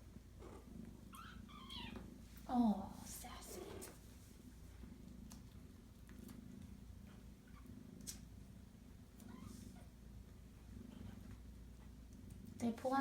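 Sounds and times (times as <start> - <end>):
cat purring: 0.0 - 13.0
faint clicks: 5.0 - 7.2.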